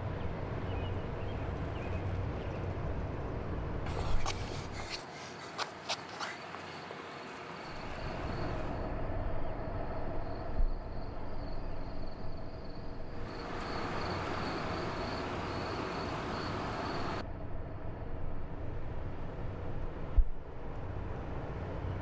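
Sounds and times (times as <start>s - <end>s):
pulsing insect trill: 6.5s - 17.2s.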